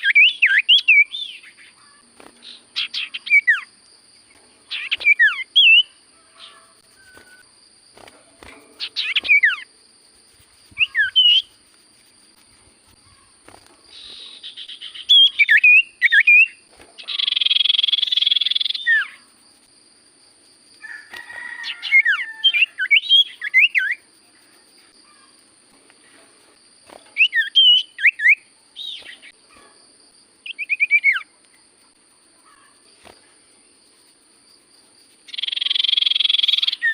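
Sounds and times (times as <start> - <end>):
bird whistled song: 0.0 - 3.7, 4.7 - 7.5, 8.8 - 9.7, 10.7 - 11.6, 13.9 - 19.3, 21.8 - 24.1, 27.2 - 29.4, 30.4 - 31.3, 35.3 - 36.9
buzzing bird rattles: 4.2 - 15.3.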